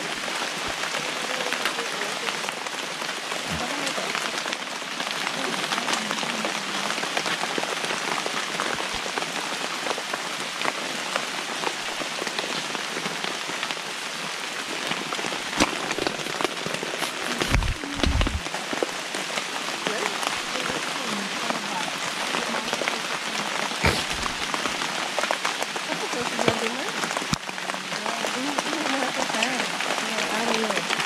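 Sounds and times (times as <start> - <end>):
steady rain: 0.0 - 31.0
low thumps: 17.4 - 18.5.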